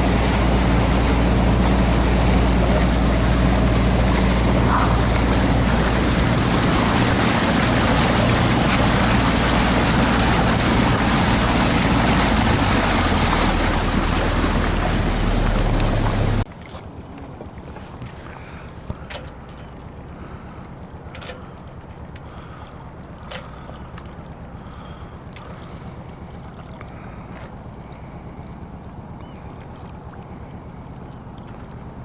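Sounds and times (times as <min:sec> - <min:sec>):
water rushing: 0:00.0 - 0:16.5
boat engine running: 0:00.0 - 0:32.0.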